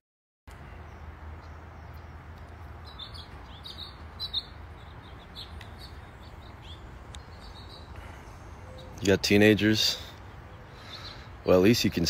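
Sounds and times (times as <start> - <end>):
small birds chirping: 0.5 - 12.0.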